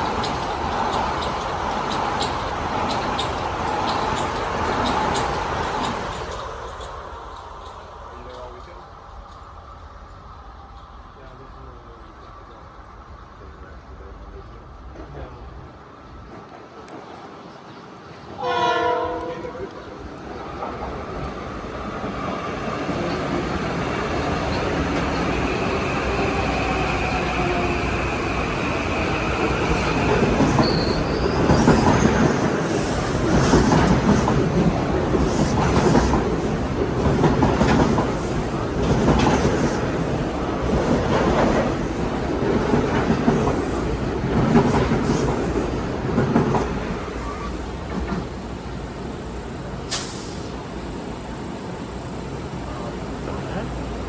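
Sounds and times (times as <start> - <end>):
train passing: 0.0 - 54.0
wheels clicking over rail joints: 29.5 - 47.0
high wheel squeal: 29.8 - 32.0.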